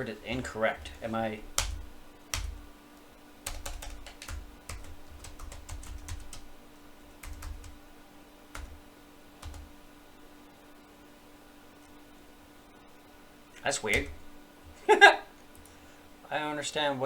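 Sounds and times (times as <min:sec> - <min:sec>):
faint steady hum: 0:00.0 - 0:17.0
keyboard typing: 0:00.3 - 0:02.7, 0:03.4 - 0:06.5, 0:07.2 - 0:07.8, 0:08.5 - 0:08.8, 0:09.4 - 0:09.7, 0:13.6 - 0:14.3.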